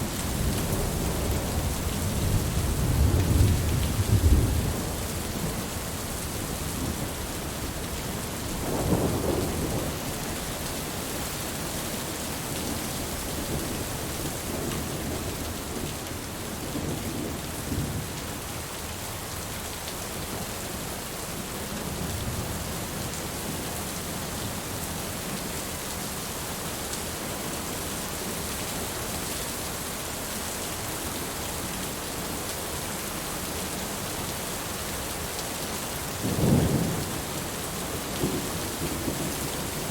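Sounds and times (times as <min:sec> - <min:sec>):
steady rain: 0:00.0 - 0:39.9
thunder rumbling: 0:00.2 - 0:05.7.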